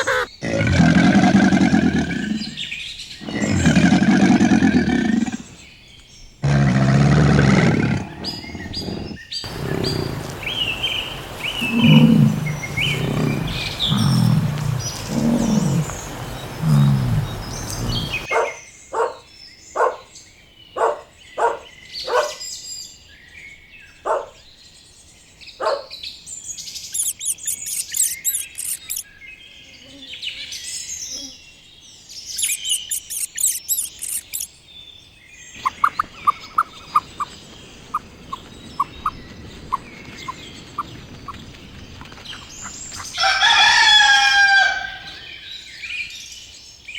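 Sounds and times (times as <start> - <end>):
bird calls and chirping: 0.0 - 0.5, 7.6 - 24.5, 25.5 - 31.4, 32.2 - 34.6, 35.4 - 46.9
big cat roaring and grunting: 0.0 - 5.6, 6.4 - 18.3.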